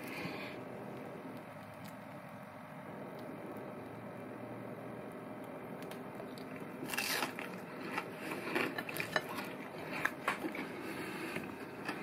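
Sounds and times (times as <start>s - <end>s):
crunchy chewing: 5.4s - 12.0s
biting into crisp fried food: 5.8s - 12.0s.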